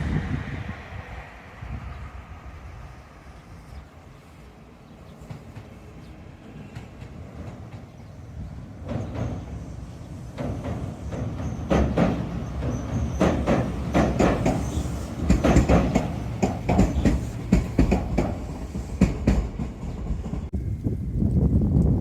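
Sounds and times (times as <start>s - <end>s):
electric train rumbling past: 0.0s - 21.9s
wheels clacking over rail joints: 5.1s - 20.6s.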